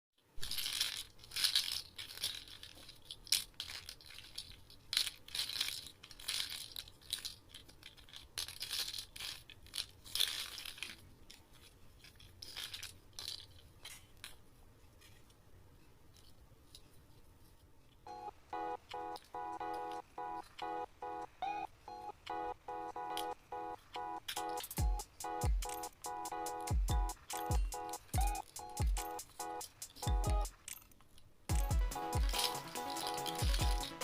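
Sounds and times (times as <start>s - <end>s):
plastic toy bricks clicking: 0.4s - 14.4s, 25.6s - 34.0s.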